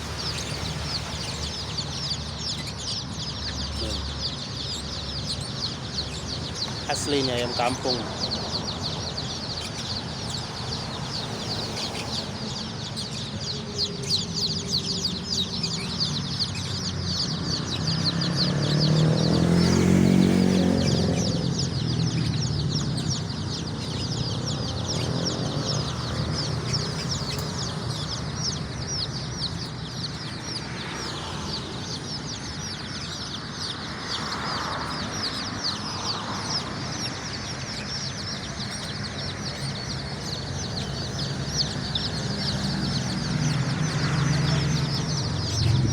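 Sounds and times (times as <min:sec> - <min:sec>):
chicks peeping: 0:00.0 - 0:45.9
low rumbling sound: 0:44.9 - 0:45.9.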